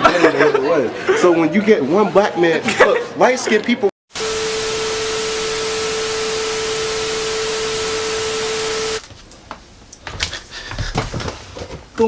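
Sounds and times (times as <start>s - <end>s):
static hiss: 4.1s - 9.0s
steady beep tone: 4.2s - 9.0s.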